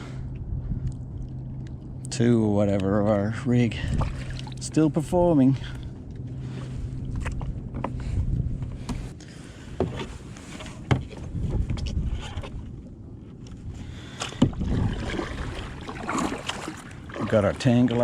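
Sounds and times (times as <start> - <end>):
low rumble of water: 0.0 - 18.0
wind: 0.0 - 18.0
clicks and knocks of fishing rods: 6.0 - 14.6.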